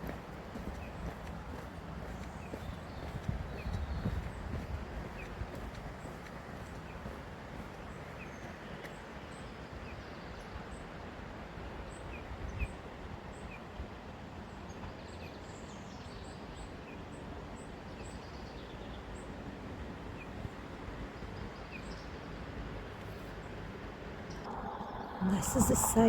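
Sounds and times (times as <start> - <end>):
small birds chirping: 0.0 - 8.5
low outdoor background noise: 0.0 - 26.0.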